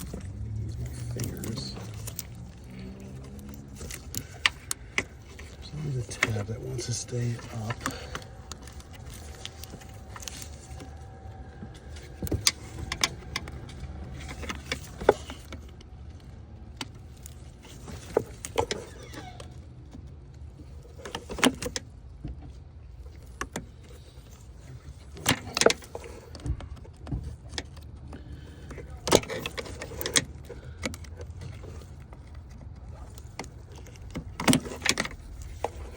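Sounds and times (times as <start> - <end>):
steady low rumble: 0.0 - 17.6.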